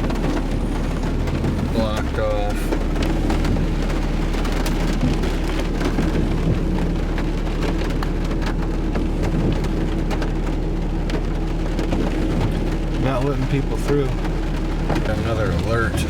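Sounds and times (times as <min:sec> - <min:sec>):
car engine hum: 0:00.0 - 0:16.0
rain on car roof: 0:00.0 - 0:16.0.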